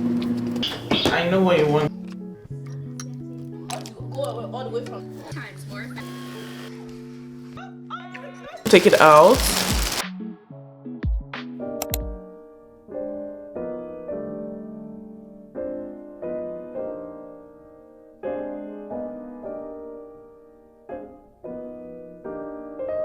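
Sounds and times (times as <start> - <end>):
soft piano chords: 12.3 - 23.0.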